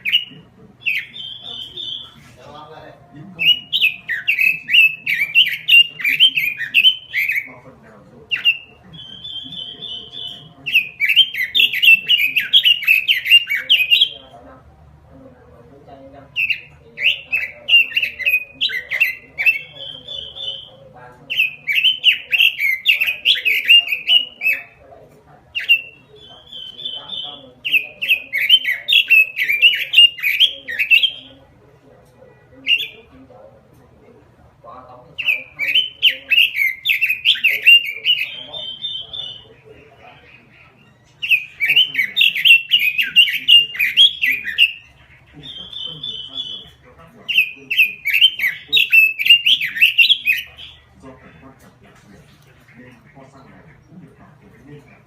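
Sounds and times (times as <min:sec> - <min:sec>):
bird whistling song: 0:00.0 - 0:02.2, 0:03.4 - 0:07.5, 0:08.3 - 0:14.3, 0:16.4 - 0:24.8, 0:25.5 - 0:31.4, 0:32.6 - 0:33.1, 0:35.2 - 0:50.9.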